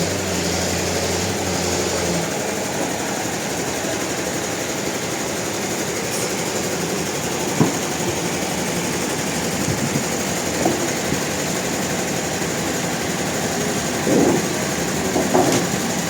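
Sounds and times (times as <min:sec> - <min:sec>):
sawmill machinery running: 0:00.0 - 0:16.0
sharp knocks: 0:07.5 - 0:08.2, 0:14.0 - 0:15.8.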